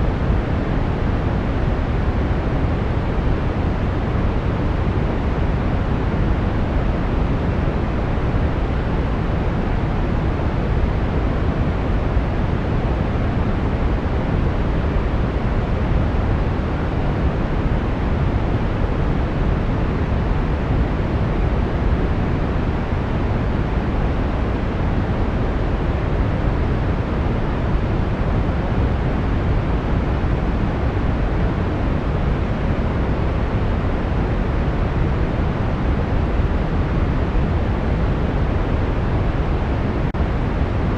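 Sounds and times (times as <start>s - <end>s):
brown noise hiss: 0.0s - 40.9s.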